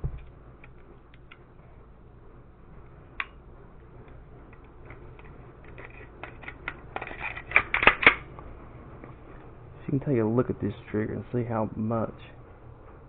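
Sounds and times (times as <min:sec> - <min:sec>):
pistol parts clicking and tapping: 0:04.0 - 0:08.3.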